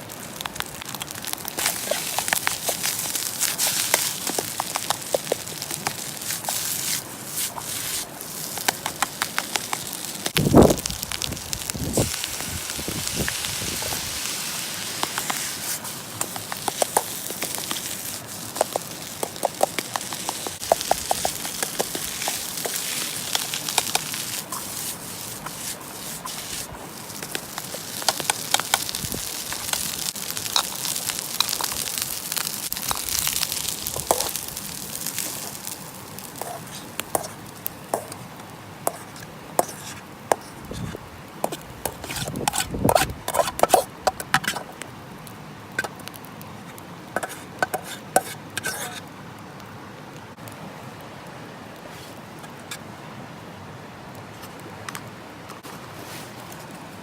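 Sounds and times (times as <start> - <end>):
food sizzling in skillet: 0.8 - 44.6.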